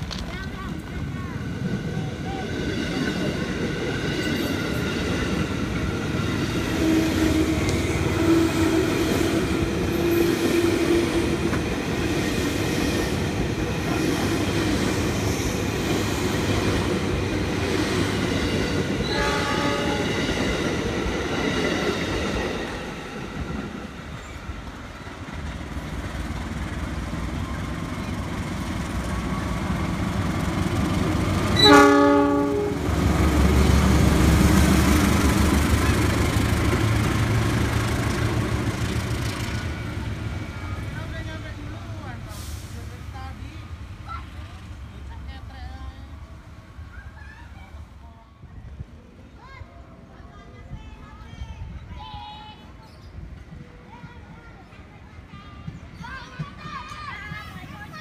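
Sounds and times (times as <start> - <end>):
train wheels rumbling on rails: 0.0 - 47.9, 50.7 - 58.0
train horn blast: 19.0 - 20.3, 31.6 - 33.0.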